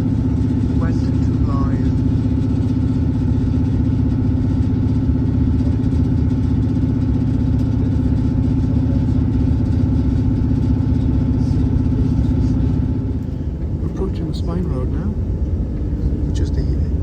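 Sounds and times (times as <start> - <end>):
diesel train engine hum: 0.0 - 17.0.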